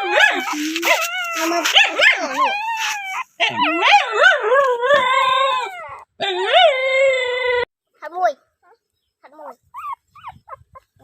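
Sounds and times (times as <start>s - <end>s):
dog whining and howling: 0.0s - 7.7s.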